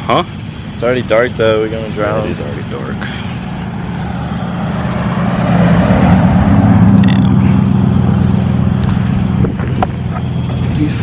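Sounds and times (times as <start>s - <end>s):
car engine accelerating: 0.0s - 11.0s
road noise: 0.0s - 11.0s
wind noise: 4.5s - 10.8s.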